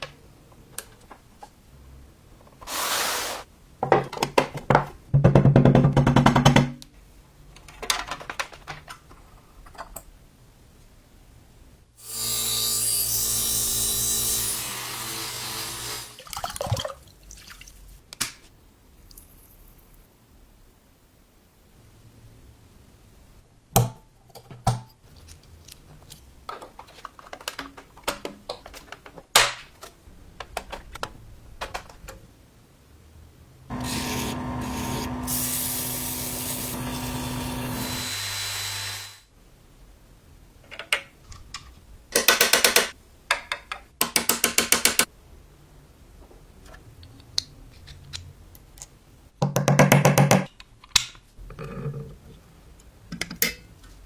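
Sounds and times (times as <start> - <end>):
clicks and knocks of handling: 7.5 - 10.1, 23.8 - 32.2, 52.8 - 54.0
tool running with hiss and hum: 33.7 - 39.3.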